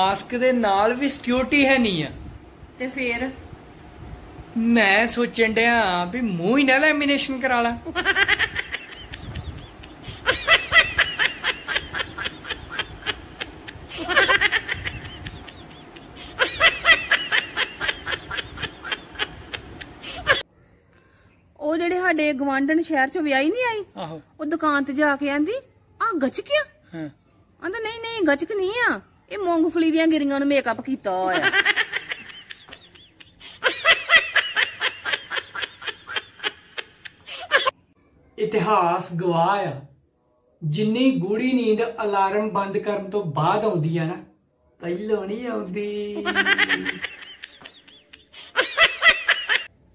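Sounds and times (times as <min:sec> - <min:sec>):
man laughing hard: 0:07.9 - 0:20.4, 0:46.2 - 0:49.7
laugh track: 0:31.4 - 0:37.7, 0:46.2 - 0:49.7.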